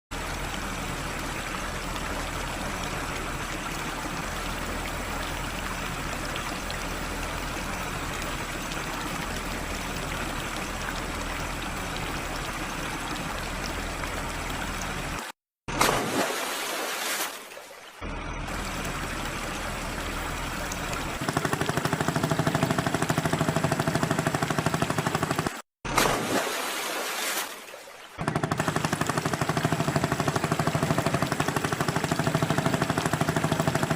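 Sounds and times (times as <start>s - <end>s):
vehicle engine running: 18.0s - 25.6s, 28.2s - 33.9s.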